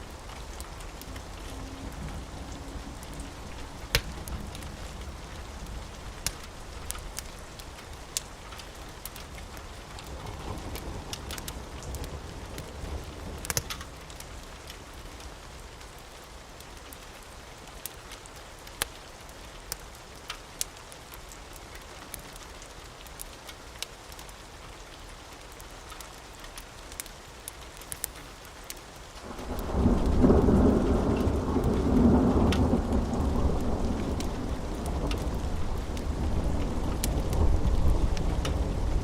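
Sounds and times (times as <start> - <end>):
rain hissing: 0.0 - 14.4, 27.6 - 39.0
sharp crackles and ticks: 0.1 - 16.0, 16.6 - 39.0.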